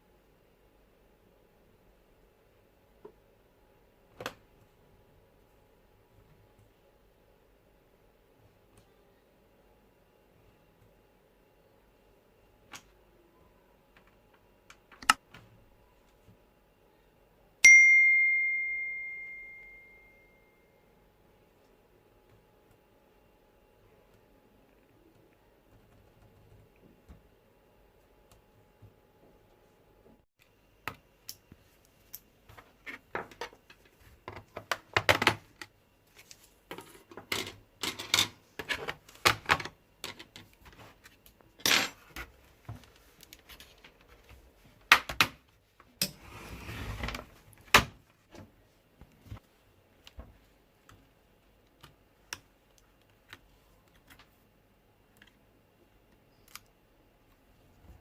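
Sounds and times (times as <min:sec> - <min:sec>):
tools and plastic parts clicking: 0:36.7 - 0:40.6.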